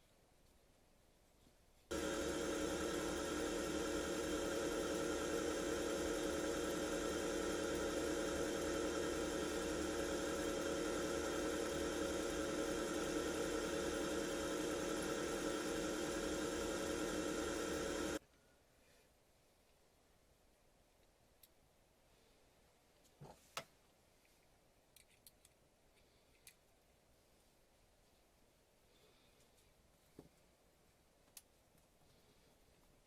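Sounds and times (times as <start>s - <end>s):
electrical machine hum: 1.9s - 18.2s.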